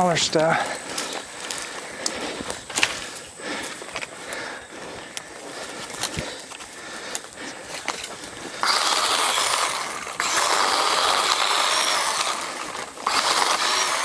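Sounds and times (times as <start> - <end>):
power saw cutting brush: 8.5 - 14.0.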